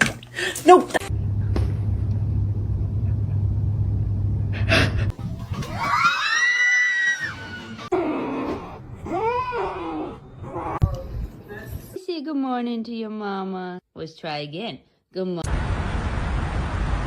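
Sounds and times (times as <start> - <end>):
low hum: 1.0 - 5.9.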